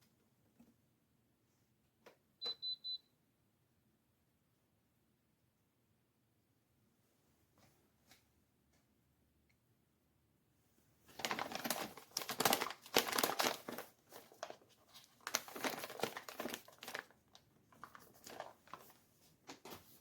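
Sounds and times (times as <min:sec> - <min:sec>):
packaging crinkling and rustling: 0:11.1 - 0:20.0.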